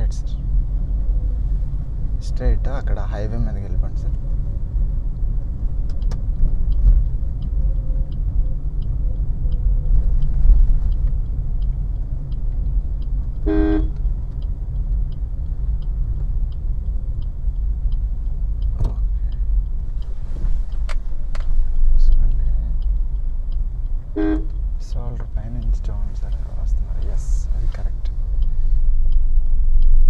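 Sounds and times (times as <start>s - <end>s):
road and engine rumble: 0.0s - 30.0s
turn signal ticking: 0.0s - 30.0s
car horn toot: 13.4s - 14.0s, 24.1s - 24.6s.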